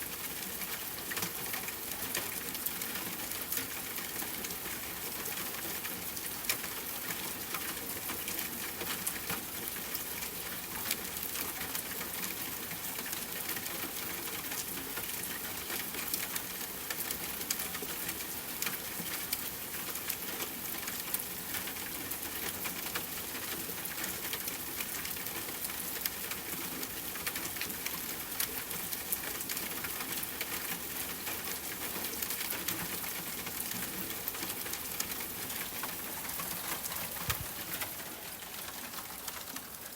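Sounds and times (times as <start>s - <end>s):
rain falling: 0.0s - 39.9s
raindrops ticking: 13.0s - 39.9s.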